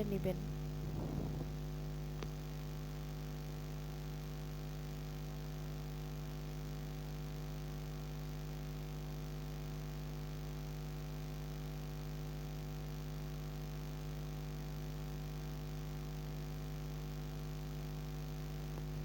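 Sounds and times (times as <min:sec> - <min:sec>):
faint hiss: 0:00.0 - 0:02.5
electrical hum: 0:00.0 - 0:05.8, 0:18.0 - 0:19.0.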